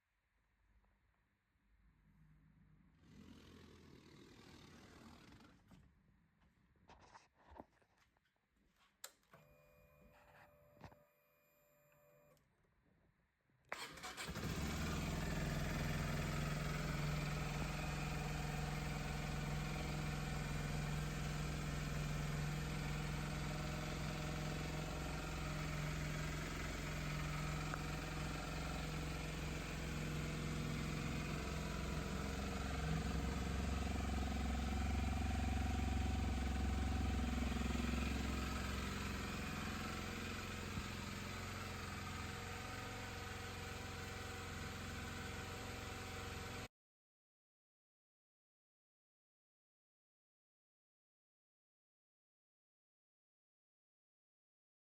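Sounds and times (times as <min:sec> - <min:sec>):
motorcycle engine starting and idling: 0:13.7 - 0:46.7.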